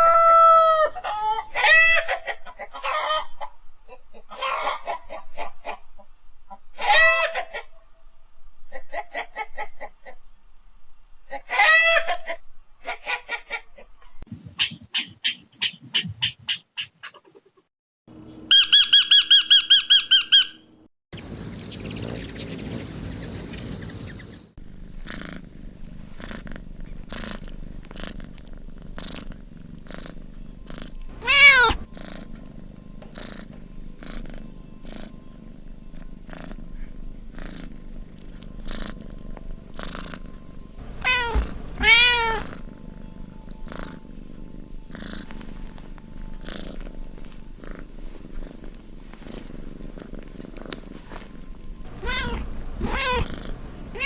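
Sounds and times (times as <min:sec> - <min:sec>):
cat purring: 0:21.4 - 0:54.0
cat meowing: 0:31.1 - 0:31.9, 0:40.8 - 0:42.6, 0:51.9 - 0:54.0.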